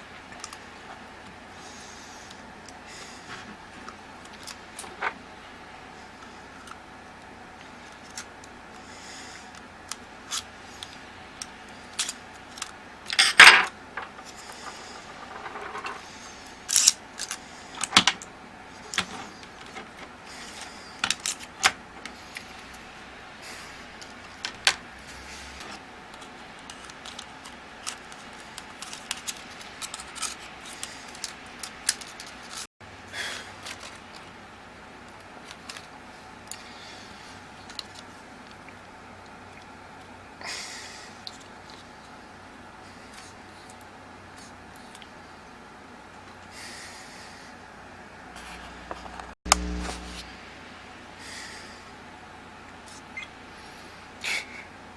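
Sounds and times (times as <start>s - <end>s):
small parts clicking and scraping: 9.5s - 22.9s, 23.9s - 32.7s, 33.6s - 34.4s, 35.0s - 38.6s.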